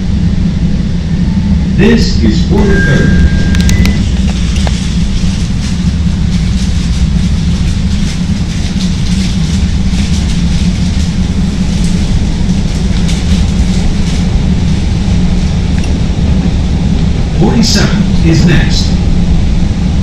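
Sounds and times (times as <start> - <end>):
elevated train rumbling: 0.0 - 20.0.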